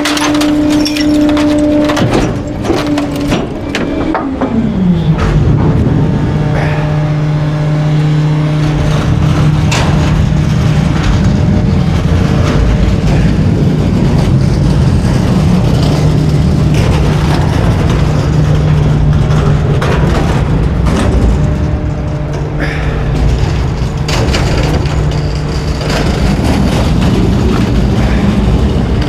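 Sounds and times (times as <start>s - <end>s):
waste cracking under packer: 0.0s - 4.3s
diesel engine running: 0.0s - 29.0s.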